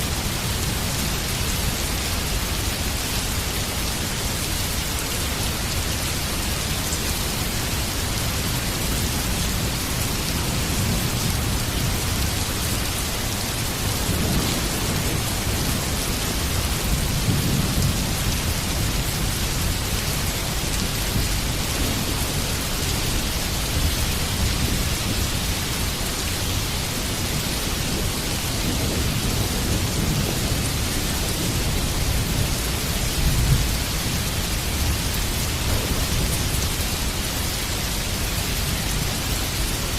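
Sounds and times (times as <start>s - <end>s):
heavy rain pouring: 0.0s - 39.9s
low rolling thunder: 9.0s - 25.6s, 27.0s - 37.2s.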